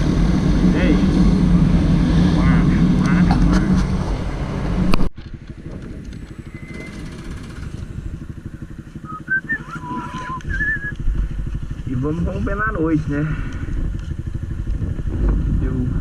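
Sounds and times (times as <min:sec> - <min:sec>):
motorcycle engine running: 0:00.0 - 0:16.0
short whistle-like tones: 0:09.0 - 0:11.0.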